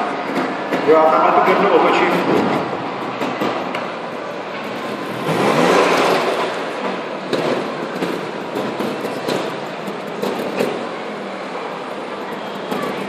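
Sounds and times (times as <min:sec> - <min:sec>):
motorcycle engine revving: 0:04.4 - 0:11.3.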